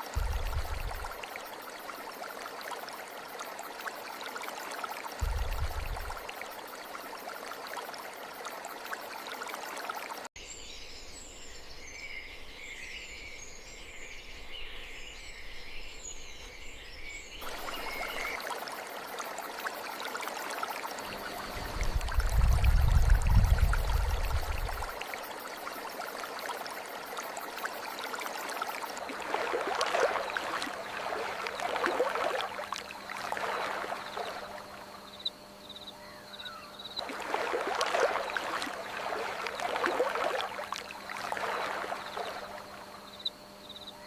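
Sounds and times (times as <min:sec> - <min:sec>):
stream water flowing: 0:00.0 - 0:10.3, 0:16.2 - 0:35.2, 0:37.0 - 0:43.5.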